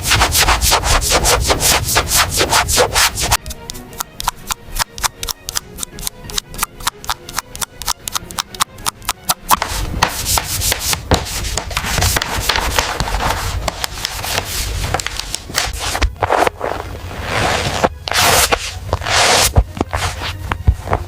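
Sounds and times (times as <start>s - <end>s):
abrasive hand sanding strokes: 0.0s - 3.4s, 9.6s - 20.4s
quick sharp clicks: 3.4s - 9.6s.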